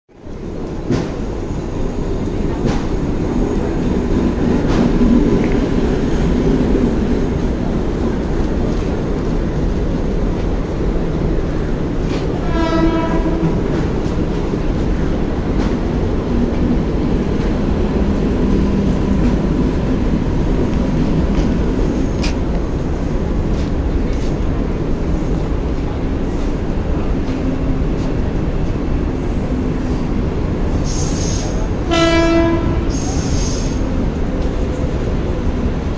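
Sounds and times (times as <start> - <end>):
electric train running past: 0.2 - 35.9
train horn blast: 12.4 - 13.7, 31.8 - 33.0.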